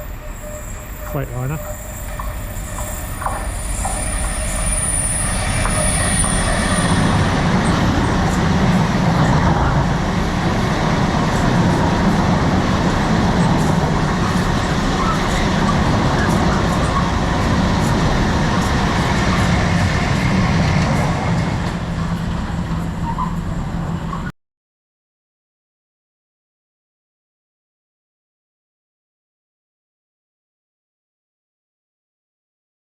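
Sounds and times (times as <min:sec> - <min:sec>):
high thin squeal: 0:00.0 - 0:09.4
freight train wagons rumbling: 0:00.0 - 0:24.3.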